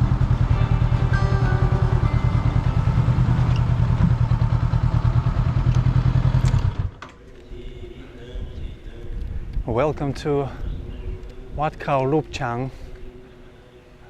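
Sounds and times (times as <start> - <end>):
motorbike engine running: 0.0 - 7.0.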